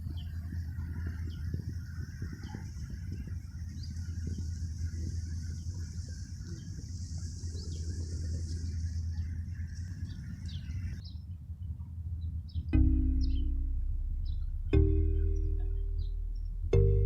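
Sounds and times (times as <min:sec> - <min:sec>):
bird chirps: 0:00.0 - 0:11.3, 0:12.2 - 0:17.0
low rumble: 0:03.4 - 0:17.0
high insect-like hiss: 0:03.5 - 0:11.0.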